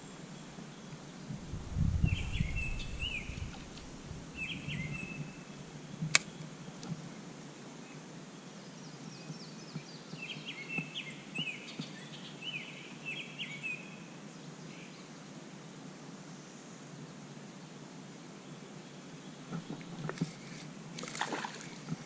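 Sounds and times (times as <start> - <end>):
songbird chirping: 0.0 - 6.9
faint outdoor background noise: 0.0 - 22.0.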